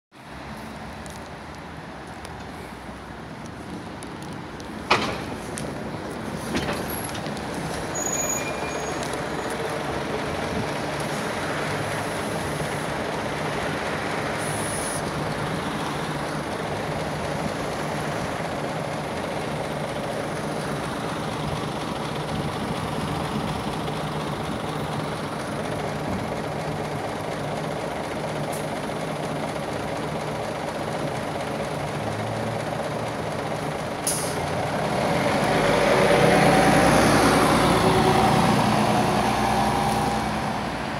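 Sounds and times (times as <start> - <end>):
bus engine accelerating: 0.3 - 40.9
bus engine idling: 1.0 - 40.9
air brake hiss: 14.4 - 15.0, 34.0 - 34.4.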